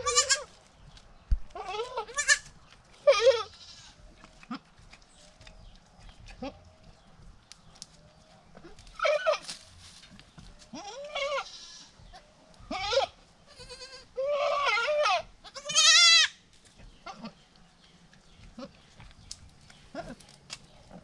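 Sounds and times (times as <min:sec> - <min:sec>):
goat kids bleating: 0:00.0 - 0:00.5, 0:01.5 - 0:04.8, 0:08.6 - 0:09.6, 0:10.6 - 0:17.4.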